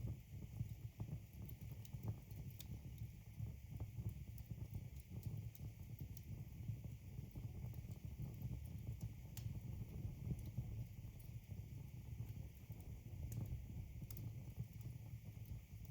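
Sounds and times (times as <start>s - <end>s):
fire rumbling: 6.2s - 15.9s
wood crackling and popping: 7.8s - 15.9s.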